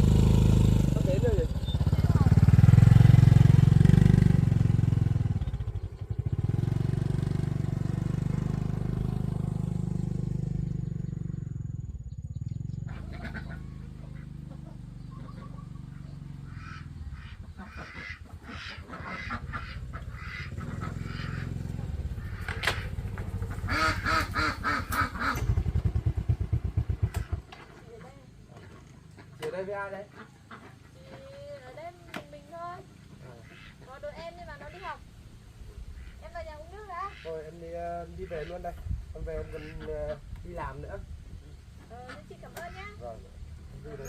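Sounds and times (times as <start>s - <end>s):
motorbike engine running: 0.0s - 28.1s
waterfowl honking: 12.9s - 23.0s, 23.6s - 25.5s, 30.0s - 31.1s, 33.2s - 35.0s, 35.9s - 40.3s, 41.8s - 43.0s.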